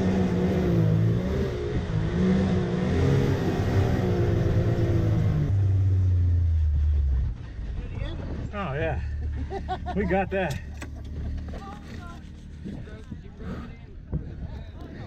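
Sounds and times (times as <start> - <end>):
off-road vehicle engine revving: 0.0 - 7.8.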